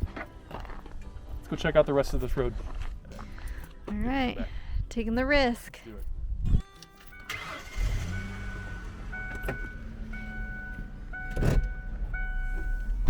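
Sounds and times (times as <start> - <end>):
truck engine rumbling: 7.1 - 13.0.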